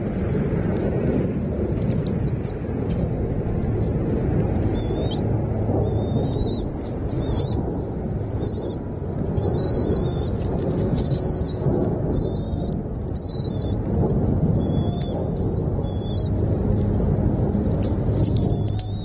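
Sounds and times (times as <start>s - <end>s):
high-pitched bird calls: 0.0s - 0.6s, 1.2s - 3.9s, 4.6s - 13.8s, 14.6s - 16.4s, 18.4s - 19.0s
low rumble: 0.0s - 19.0s.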